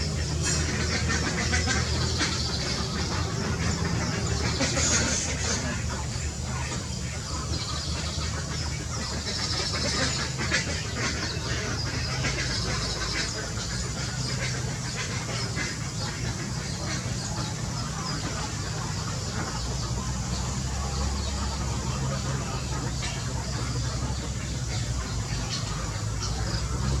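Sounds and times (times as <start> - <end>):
birds calling and chirping: 0.0 - 27.0.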